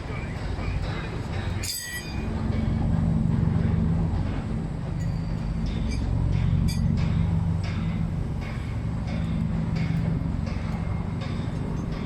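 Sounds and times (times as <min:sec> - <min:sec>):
heavy machinery engine running: 0:00.0 - 0:12.0
high-pitched metallic clinks: 0:01.4 - 0:02.2, 0:05.0 - 0:12.0.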